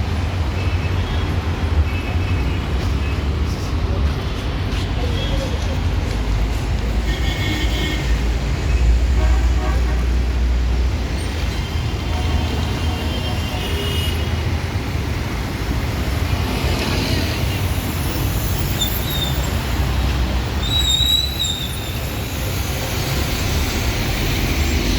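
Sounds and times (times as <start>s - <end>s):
traffic rumble: 0.0s - 24.9s
high squeaks: 20.5s - 22.2s.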